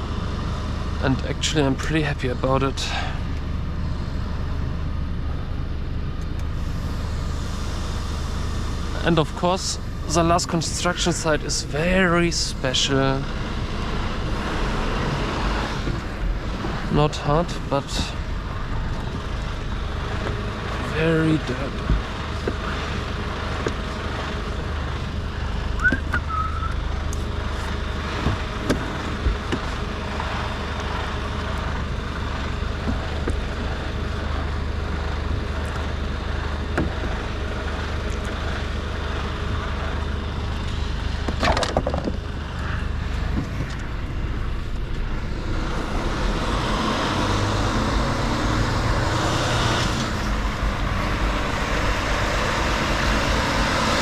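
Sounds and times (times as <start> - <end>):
diesel truck engine running: 0.0 - 54.0
loud burst of noise: 6.5 - 22.4, 42.2 - 54.0.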